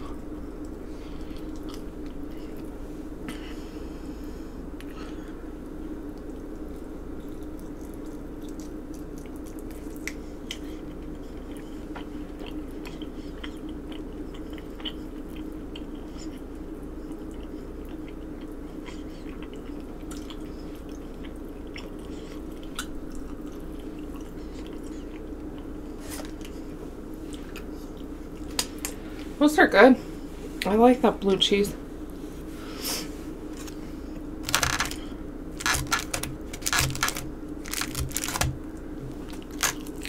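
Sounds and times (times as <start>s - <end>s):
steady low hum: 0.0s - 40.0s
chewing and mouth sounds: 0.1s - 3.4s, 6.0s - 29.0s
small clicks and smacks: 35.6s - 38.6s.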